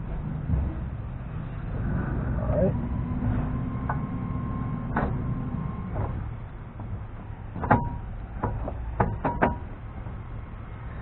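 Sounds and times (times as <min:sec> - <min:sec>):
low steady rumble: 0:00.0 - 0:11.0
metallic knocks of steel parts: 0:07.6 - 0:09.8.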